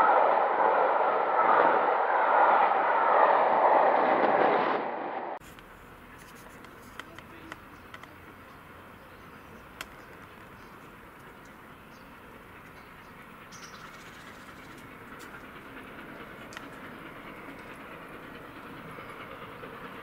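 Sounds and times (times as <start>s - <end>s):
train coaches rushing past: 0.0s - 20.0s
faint clicks: 5.5s - 8.6s, 9.8s - 11.6s, 16.4s - 16.8s.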